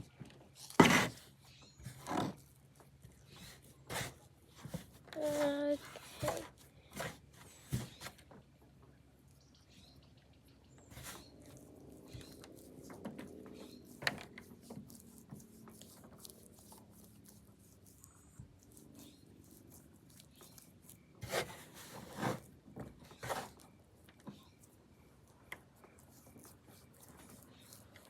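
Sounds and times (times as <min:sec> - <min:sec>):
slime squishing and rubbing: 0:11.0 - 0:22.5.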